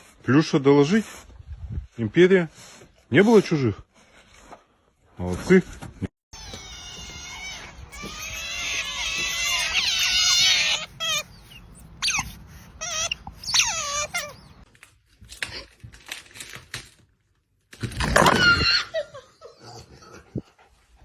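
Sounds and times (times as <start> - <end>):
high-pitched animal cries: 6.3 - 14.7, 18.3 - 19.0.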